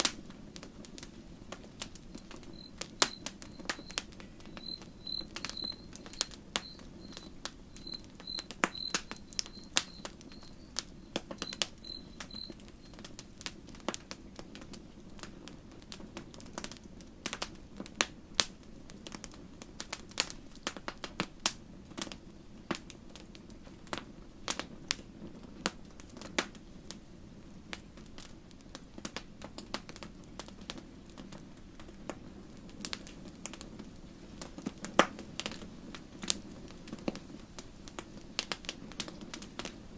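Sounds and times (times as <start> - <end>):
campfire crackling and popping: 0.0 - 39.9
cricket chirping: 2.2 - 13.0.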